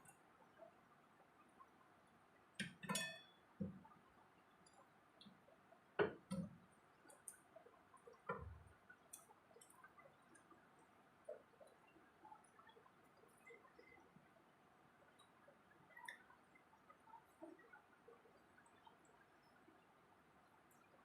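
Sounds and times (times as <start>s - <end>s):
soft eating clicks and taps: 2.6s - 14.0s, 15.1s - 19.6s.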